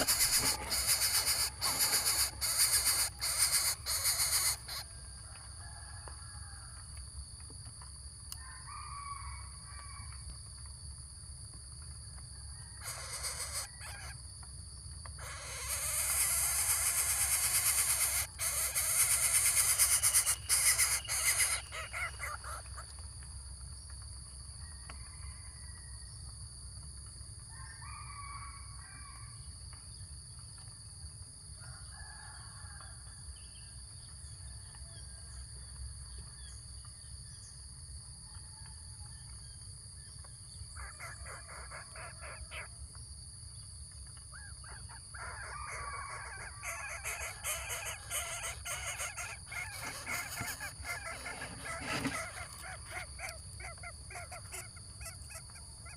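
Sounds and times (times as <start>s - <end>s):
harsh raspy bird calls: 0.0s - 4.9s, 12.8s - 14.2s, 15.2s - 22.9s, 40.8s - 42.7s, 44.4s - 55.9s.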